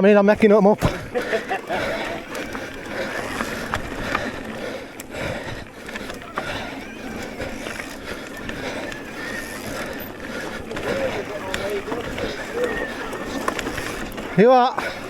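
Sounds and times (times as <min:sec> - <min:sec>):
bike rattling and clicking: 0:00.0 - 0:15.0
tyres rolling over rough ground: 0:00.2 - 0:15.0.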